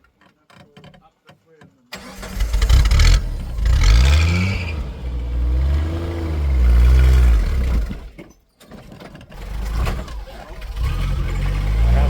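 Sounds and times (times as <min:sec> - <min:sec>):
truck engine revving: 0:02.0 - 0:08.2, 0:09.4 - 0:12.0.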